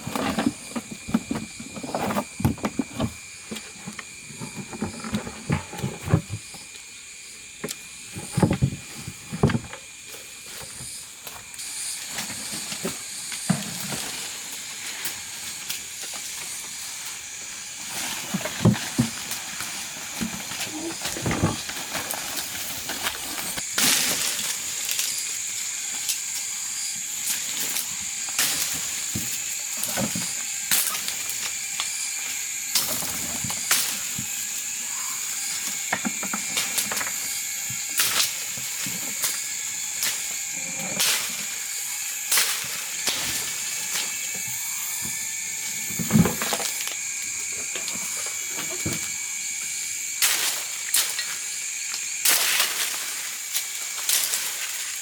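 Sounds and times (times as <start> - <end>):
high-pitched hum: 10.6 - 54.7.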